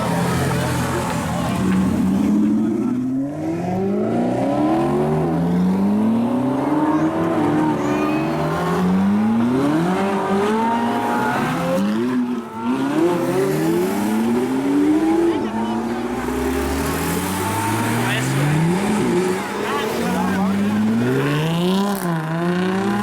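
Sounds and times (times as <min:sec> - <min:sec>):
sports car engines accelerating: 0:00.0 - 0:23.0
tire squeal: 0:16.8 - 0:20.4.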